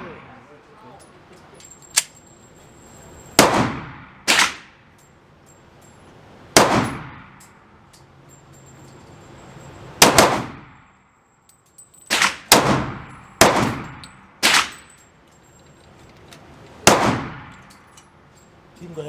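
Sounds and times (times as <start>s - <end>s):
pistol shots with echo: 3.4s - 4.8s, 6.6s - 7.2s, 10.0s - 10.7s, 12.1s - 14.9s, 16.8s - 17.5s.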